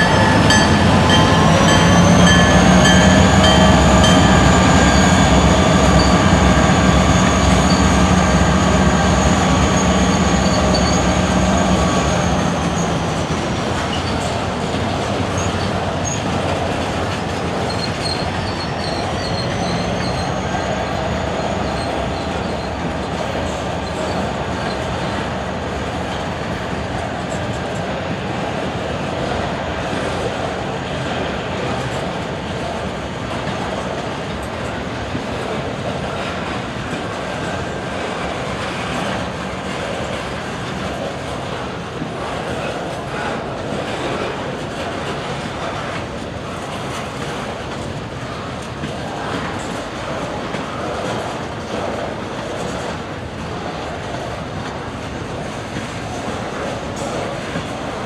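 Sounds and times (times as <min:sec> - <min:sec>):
train wheels squealing on rail: 0:00.0 - 0:27.8, 0:33.4 - 0:41.6
diesel locomotive engine drone: 0:00.0 - 0:58.0
freight cars rolling: 0:00.0 - 0:58.0.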